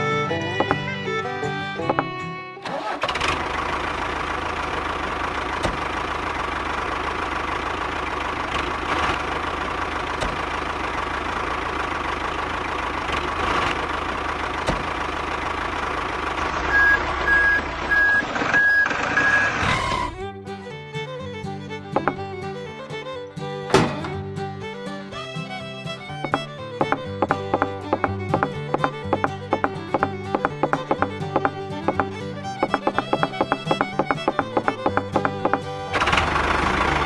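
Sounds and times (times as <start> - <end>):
truck engine running: 0.0 - 37.0
reversing beeps: 16.7 - 19.6.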